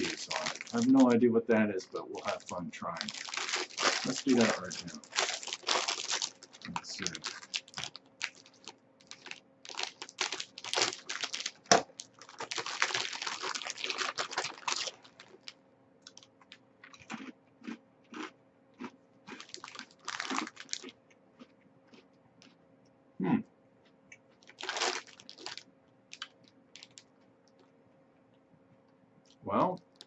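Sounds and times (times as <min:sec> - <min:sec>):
bread roll crunching: 0:00.0 - 0:15.5, 0:16.1 - 0:22.6, 0:24.3 - 0:27.7
plastic wrapper crinkling: 0:00.0 - 0:17.0, 0:19.3 - 0:20.9, 0:24.4 - 0:27.6.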